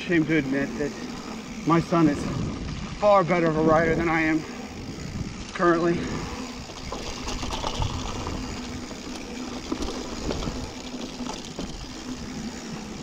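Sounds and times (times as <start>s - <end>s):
bike knocking and rattling: 0.0s - 13.0s
tyres rushing on dirt: 0.0s - 13.0s.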